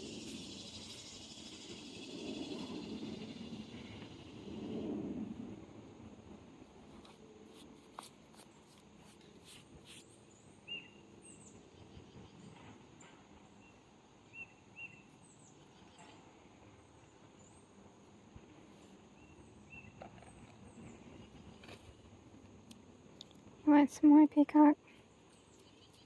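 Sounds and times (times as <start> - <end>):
small birds chirping: 0.0 - 4.9, 8.0 - 17.8, 19.0 - 22.2, 23.1 - 26.0.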